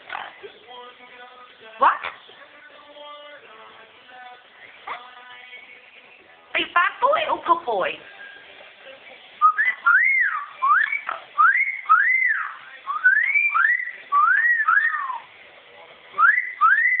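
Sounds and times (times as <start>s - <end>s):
parrot whistling: 9.4s - 15.3s, 16.2s - 17.0s.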